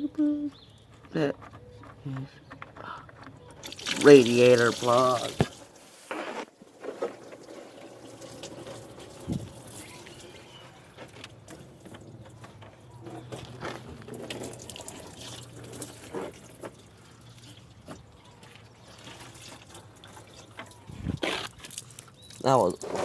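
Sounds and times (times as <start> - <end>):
coolant pouring and splashing: 3.6 - 5.9, 6.7 - 12.2, 14.0 - 23.0.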